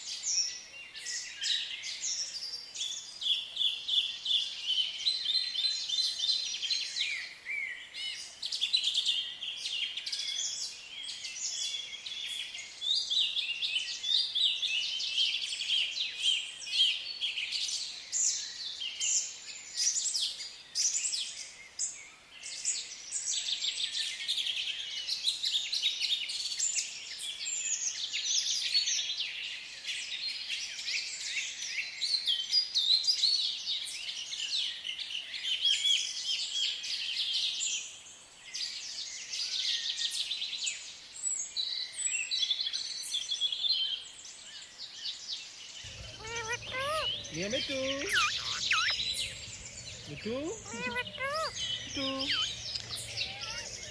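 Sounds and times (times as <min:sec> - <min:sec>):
small birds chirping: 0:45.8 - 0:53.9.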